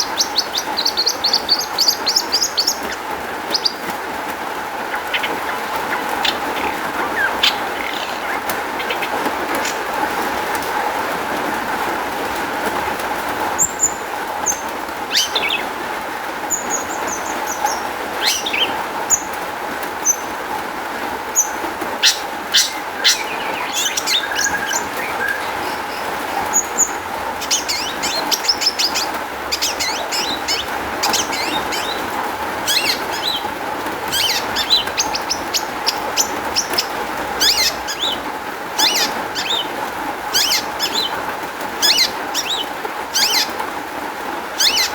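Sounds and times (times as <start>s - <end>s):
bird singing high chirps: 4.7s - 10.0s, 21.4s - 33.5s, 34.1s - 38.2s, 38.8s - 41.2s, 41.8s - 43.6s.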